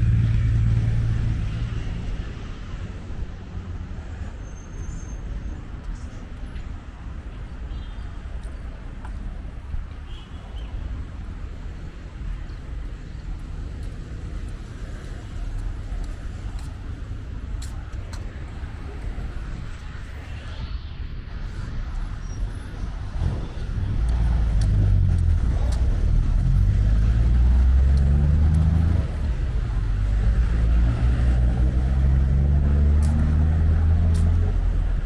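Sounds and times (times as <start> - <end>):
road traffic rumble: 0.0 - 35.0
faint squeaks and clicks: 4.2 - 6.8.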